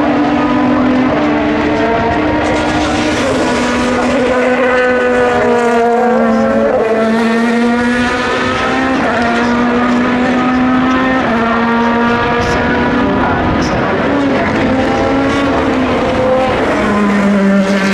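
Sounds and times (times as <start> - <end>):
race car engines at high revs: 0.0 - 17.9.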